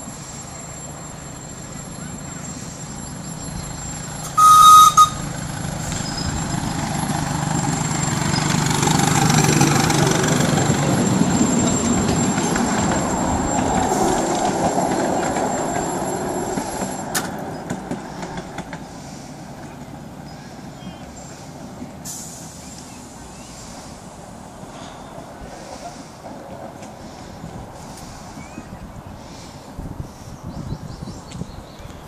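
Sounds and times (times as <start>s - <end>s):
miniature train rumbling past: 0.0s - 30.2s
train whistle toot: 4.2s - 5.3s.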